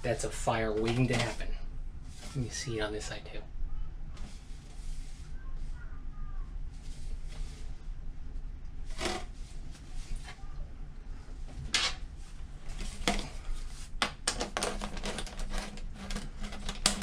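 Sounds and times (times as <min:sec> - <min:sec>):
knocks and rustles of duct handling: 0:11.5 - 0:17.0
clicks and crinkles of duct: 0:12.7 - 0:17.0.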